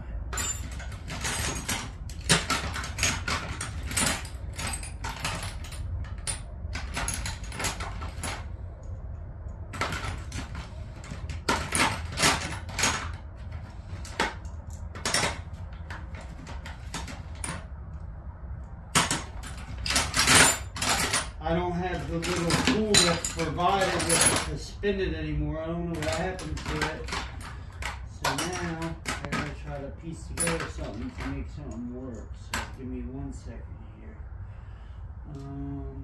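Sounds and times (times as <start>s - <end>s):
metal tools clinking and clattering: 0.3s - 8.5s, 9.7s - 17.7s, 19.0s - 24.6s, 25.9s - 32.8s.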